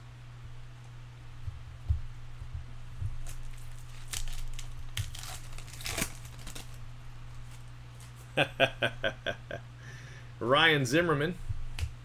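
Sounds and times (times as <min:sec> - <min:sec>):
foil wrapper crinkling and tearing: 0:03.2 - 0:08.2
person's voice: 0:10.4 - 0:11.5.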